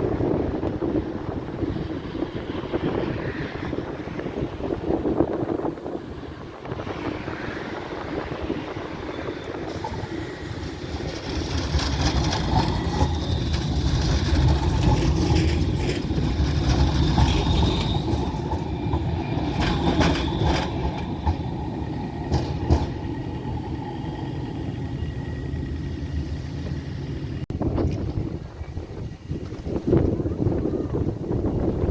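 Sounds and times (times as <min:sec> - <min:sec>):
tram rolling rumble: 0:00.0 - 0:31.9
wheels clacking over track: 0:08.7 - 0:26.1.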